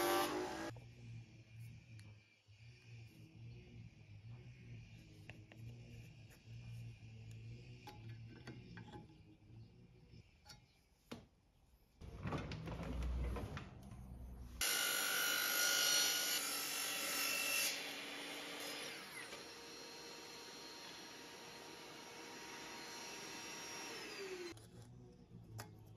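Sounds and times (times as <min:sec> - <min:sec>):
electric power tool whining: 0:00.0 - 0:00.7, 0:14.6 - 0:24.6.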